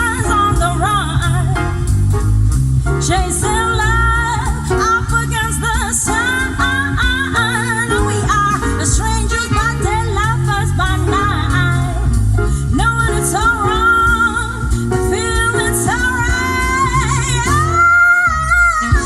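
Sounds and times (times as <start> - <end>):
pop song with heavy bass: 0.0 - 19.0.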